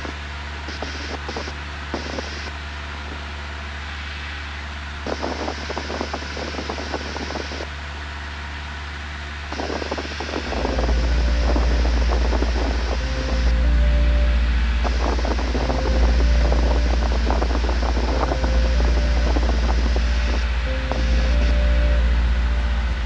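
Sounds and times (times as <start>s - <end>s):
airplane engine drone in cockpit: 8.8s - 23.0s
intercom crackling noise: 9.8s - 23.0s.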